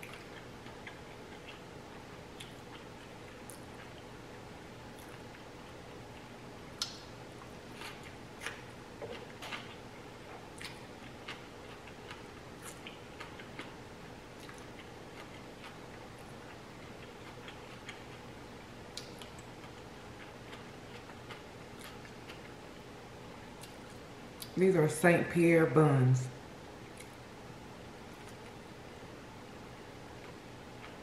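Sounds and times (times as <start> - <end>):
mouth clicks and smacks chewing: 0.0 - 4.0, 10.6 - 13.8, 14.4 - 15.8, 18.9 - 22.5
faint steady hum: 0.0 - 31.0.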